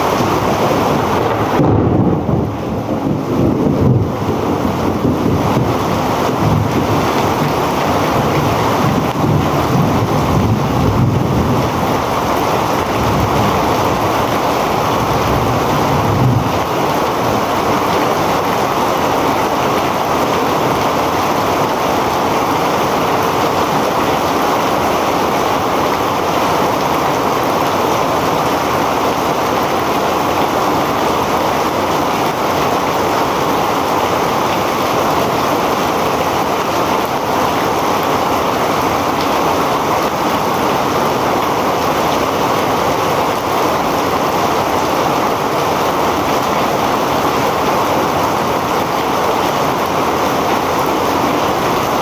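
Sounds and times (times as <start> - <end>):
thunder rumbling: 0.0 - 28.8
heavy rain pouring: 0.0 - 52.0.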